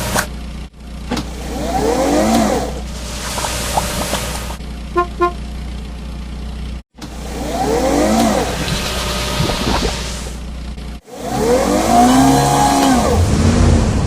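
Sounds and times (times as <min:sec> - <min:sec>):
low engine hum: 0:00.0 - 0:11.0
double horn toot: 0:05.0 - 0:05.5.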